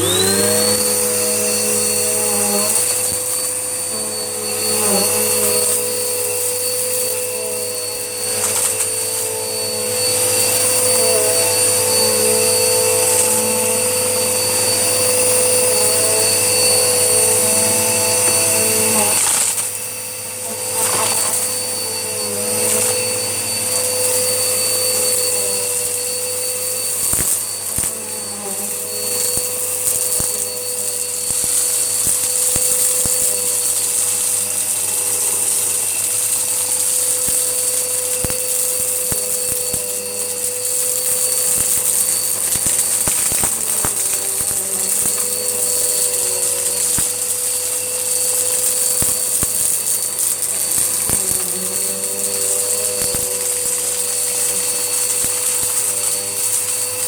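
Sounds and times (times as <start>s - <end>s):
vacuum cleaner running: 0.0s - 57.0s
grit clicking in vacuum: 26.9s - 57.0s.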